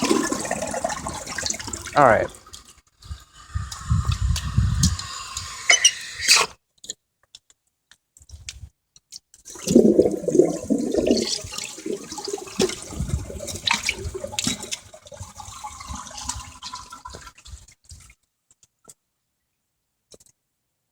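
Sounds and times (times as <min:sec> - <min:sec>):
toilet flushing: 0:00.0 - 0:02.7, 0:09.5 - 0:17.6.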